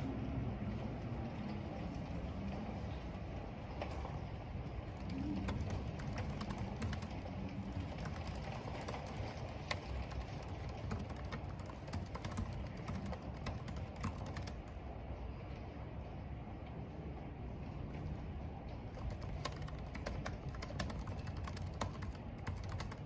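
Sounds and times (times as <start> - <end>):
wind and rain: 0.0 - 23.0
computer keyboard typing: 5.1 - 14.8, 18.9 - 23.0.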